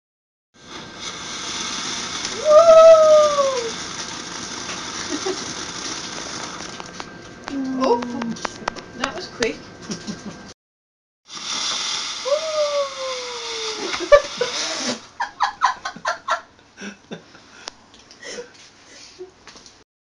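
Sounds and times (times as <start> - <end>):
firework whistling hiss: 0.6 - 6.8, 11.3 - 15.2
firework bursts and pops: 0.6 - 7.0, 11.3 - 15.0.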